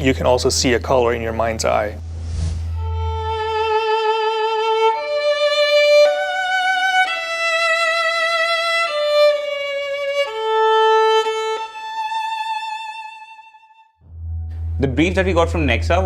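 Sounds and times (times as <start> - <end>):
solo violin melody: 2.7 - 14.0.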